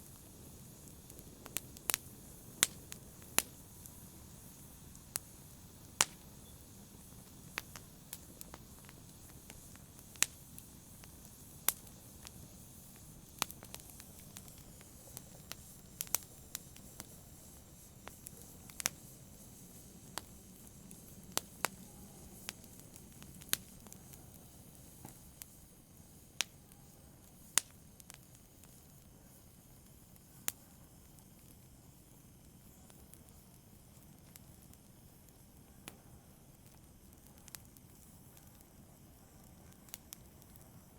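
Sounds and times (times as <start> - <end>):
burning wood crackling and popping: 0.0 - 40.9
wood fire flames rushing: 0.0 - 40.9.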